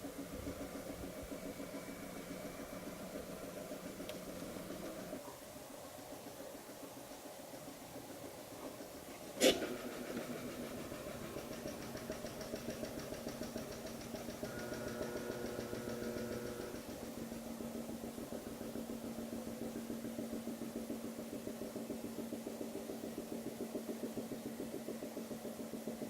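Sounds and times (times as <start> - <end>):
rapid fine ticking: 0.0 - 26.0
vacuum pump humming and pulsing: 6.1 - 26.0.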